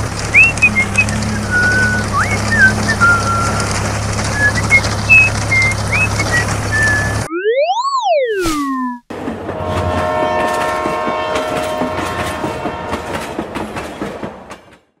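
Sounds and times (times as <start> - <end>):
fast rhythmic train clatter: 0.0 - 7.3, 9.1 - 15.0
falling whistle-like tone: 4.4 - 9.0
steady horn tone: 9.5 - 13.2.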